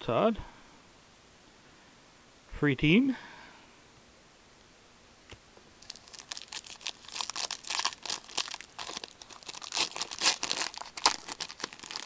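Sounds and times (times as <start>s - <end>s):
card wrapper crinkling: 5.8s - 12.0s.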